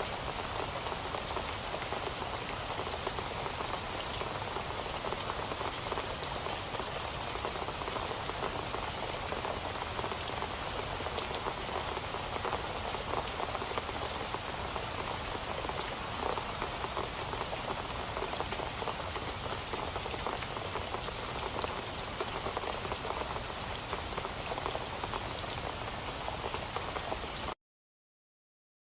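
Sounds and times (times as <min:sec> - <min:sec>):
rain pattering on hard surface: 0:00.0 - 0:27.6.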